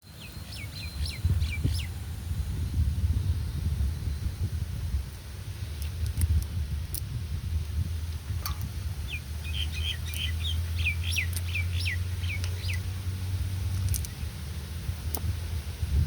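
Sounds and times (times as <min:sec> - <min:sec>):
bird chirping: 0:00.0 - 0:02.0, 0:08.3 - 0:13.0
steady low rumble: 0:00.1 - 0:16.0.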